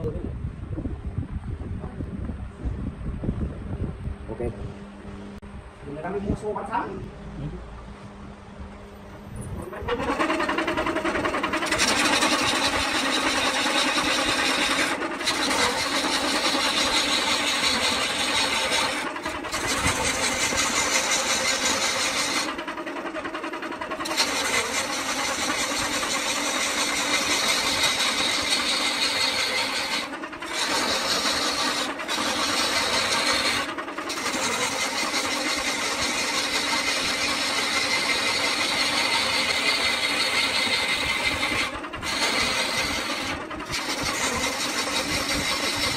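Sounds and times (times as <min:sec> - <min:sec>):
lathe humming: 0:06.4 - 0:45.9
gouge cutting wood: 0:09.7 - 0:45.9.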